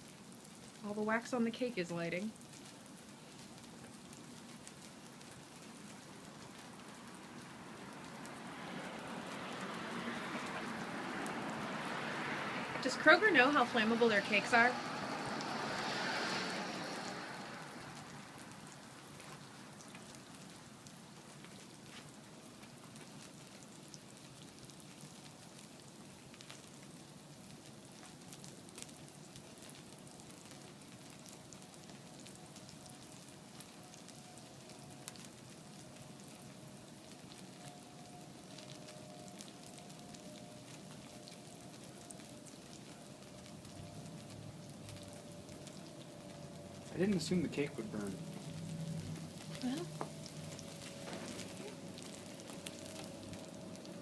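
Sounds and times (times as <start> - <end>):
fire hissing and crackling: 0.0 - 54.0
faint steady tone: 31.9 - 54.0.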